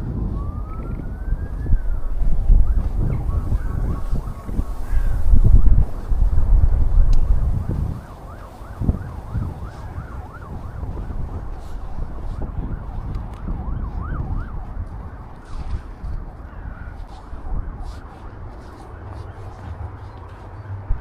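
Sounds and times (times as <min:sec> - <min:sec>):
emergency siren yelping: 0:00.0 - 0:20.2
wind buffeting microphone: 0:00.0 - 0:21.0.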